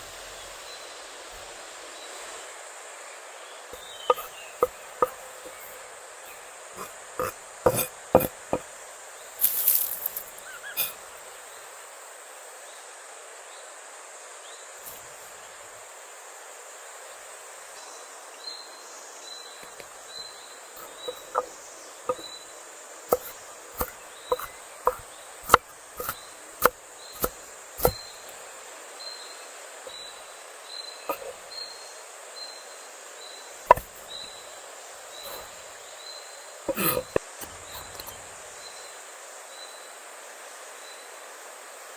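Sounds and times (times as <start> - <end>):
insect chirping: 0.0 - 41.9
outdoor hiss: 0.0 - 41.9
sharp knocks: 7.2 - 8.7, 23.1 - 28.0.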